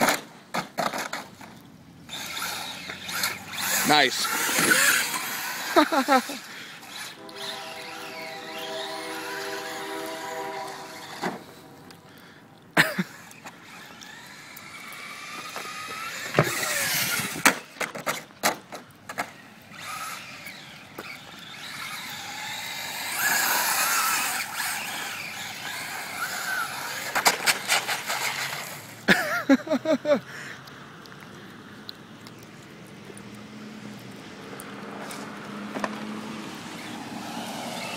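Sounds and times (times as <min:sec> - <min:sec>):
tyres hissing on wet ground: 0:02.0 - 0:18.2, 0:18.8 - 0:37.9
rc car electric motor whine: 0:02.1 - 0:11.7, 0:13.4 - 0:17.6, 0:19.7 - 0:29.0, 0:36.7 - 0:37.9.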